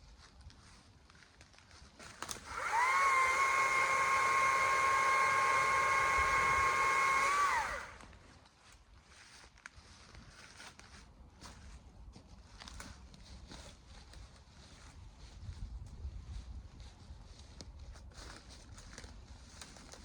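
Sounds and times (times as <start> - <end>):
chainsaw revving: 2.4 - 8.1.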